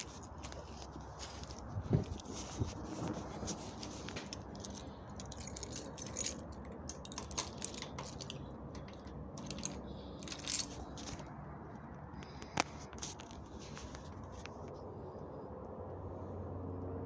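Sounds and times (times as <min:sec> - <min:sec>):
metallic jingling: 0:03.8 - 0:11.2.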